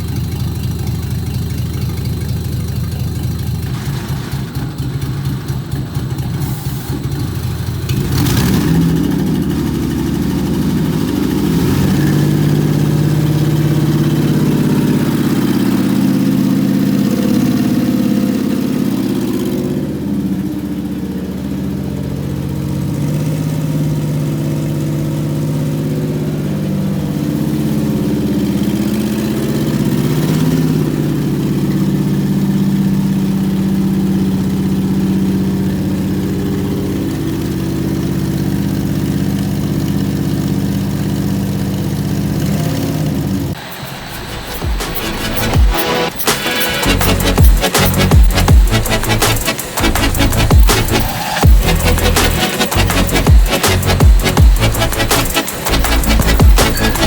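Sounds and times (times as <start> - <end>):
engine running: 0.0 - 57.0
engine starter cranking: 41.2 - 57.0.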